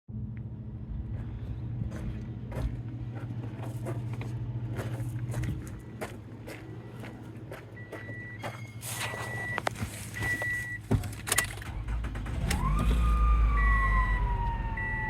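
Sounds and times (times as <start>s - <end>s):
car engine humming: 0.1s - 15.0s
sharp engine clicks: 11.1s - 13.0s.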